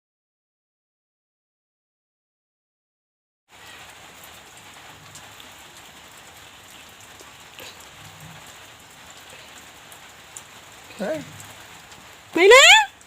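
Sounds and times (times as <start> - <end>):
background hiss: 3.5 - 13.0.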